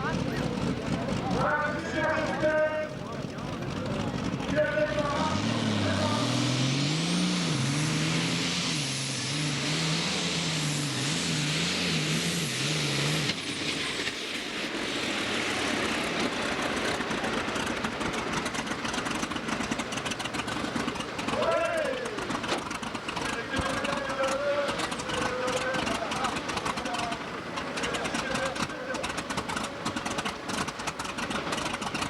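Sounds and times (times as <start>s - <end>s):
rough crackling engine noise: 0.0s - 32.0s
tractor engine under full load: 0.0s - 32.0s.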